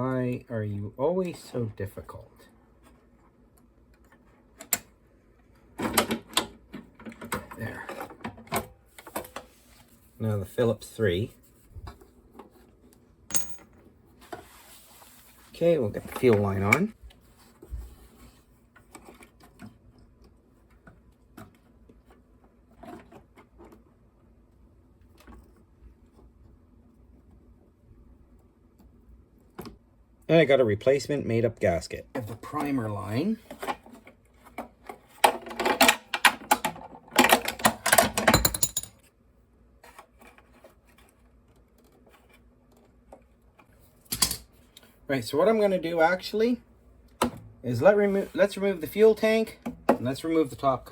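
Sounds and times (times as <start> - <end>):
metal tools clattering: 13.3 - 13.7, 37.2 - 39.0
small parts clicking and knocking: 13.3 - 13.8, 44.0 - 44.5.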